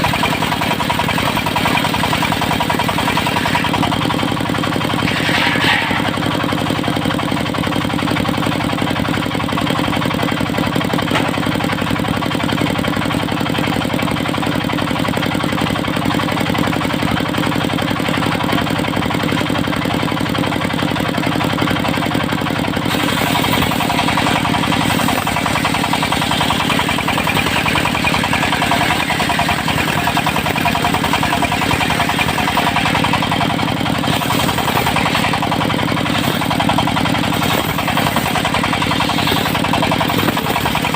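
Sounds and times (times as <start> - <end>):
saw blade rasping through wood: 0.0 - 4.0, 4.9 - 6.4, 22.9 - 40.9
sawmill engine running: 0.0 - 40.9.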